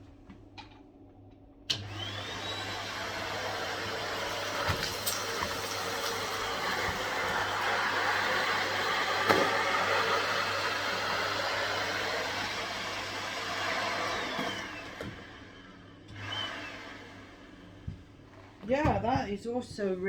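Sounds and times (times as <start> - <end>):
vacuum cleaner motor whining: 1.7 - 20.0.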